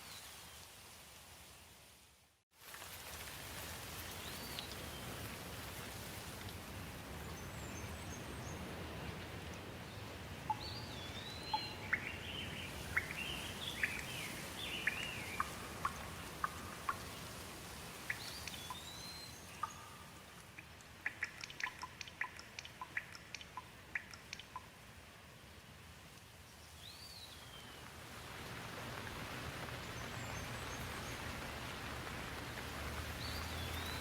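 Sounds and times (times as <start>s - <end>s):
steady rain: 0.0s - 34.0s
birds calling and chirping: 10.5s - 17.3s.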